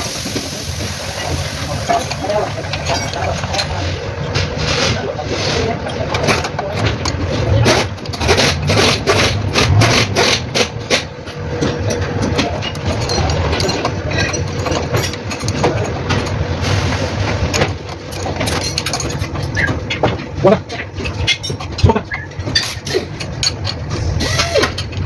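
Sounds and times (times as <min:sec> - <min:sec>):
diesel engine running: 0:00.0 - 0:25.0
engine knocking clicks: 0:06.0 - 0:16.5.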